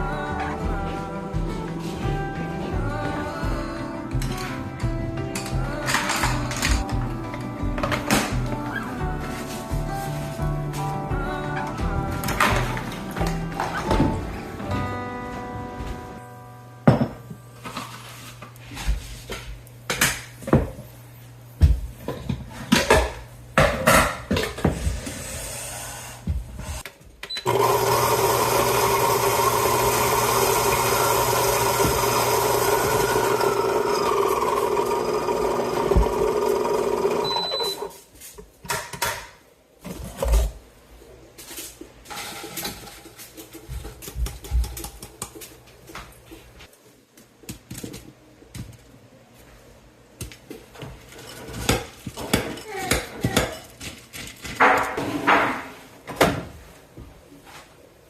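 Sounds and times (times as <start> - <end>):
kitchen appliance motor running: 27.4 - 37.9
kitchen utensils clinking: 42.0 - 45.6.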